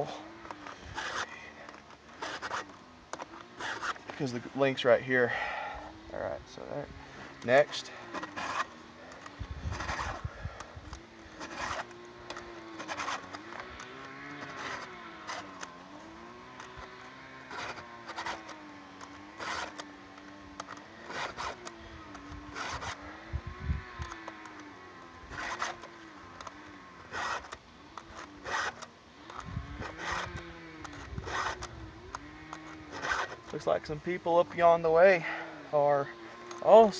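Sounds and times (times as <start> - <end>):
file rasping on chain: 0.0 - 4.2, 7.4 - 10.7, 11.3 - 15.7, 16.6 - 21.8, 22.4 - 23.0, 25.3 - 31.8, 32.5 - 33.6
distant chainsaw running: 0.0 - 36.9.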